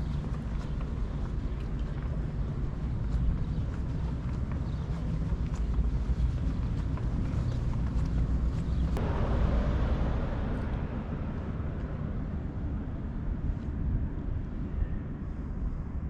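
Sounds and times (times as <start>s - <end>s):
traffic noise: 0.0s - 15.2s
wind rumbling on microphone: 0.0s - 16.0s
vehicle passing: 9.0s - 13.7s.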